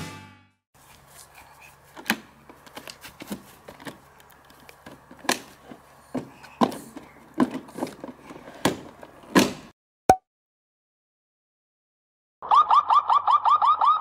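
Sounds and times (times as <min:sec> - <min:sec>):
plastic toy car knocks and thumps: 0:06.1 - 0:09.7.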